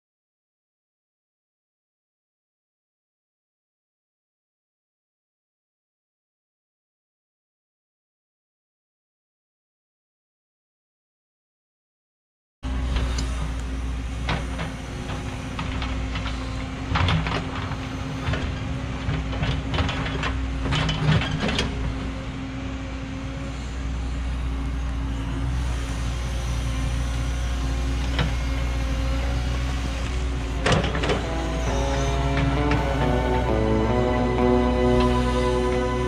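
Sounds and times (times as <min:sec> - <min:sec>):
excavator diesel engine running: 0:12.7 - 0:36.0.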